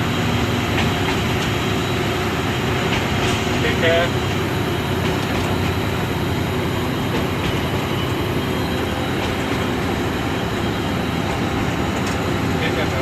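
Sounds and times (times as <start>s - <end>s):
diesel locomotive engine hum: 0.0s - 13.0s
train rumble: 0.0s - 13.0s.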